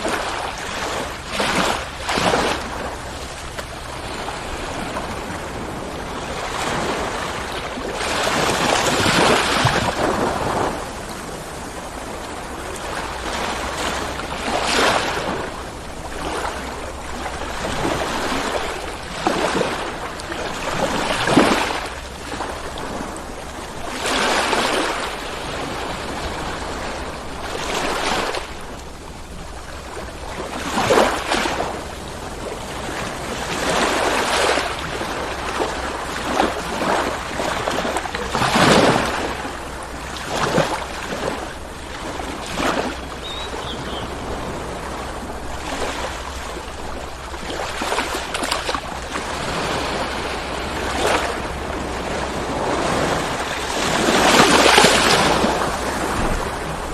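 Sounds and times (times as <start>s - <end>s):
ocean waves breaking on shore: 0.0s - 56.9s.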